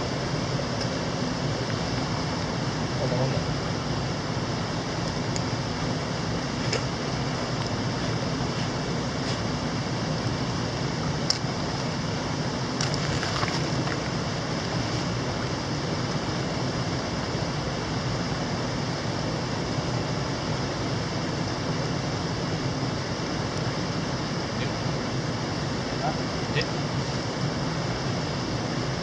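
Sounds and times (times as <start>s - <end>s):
mountain stream rushing: 11.5s - 17.4s.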